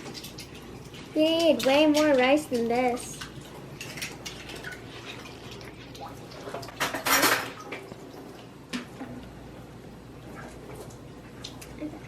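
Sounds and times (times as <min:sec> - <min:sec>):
utensils and dishes clicking: 0:06.6 - 0:07.6.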